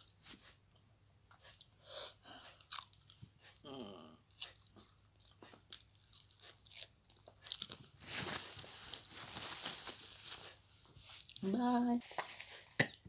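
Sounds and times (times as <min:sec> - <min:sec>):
person chewing: 0:01.3 - 0:08.0, 0:11.0 - 0:11.4.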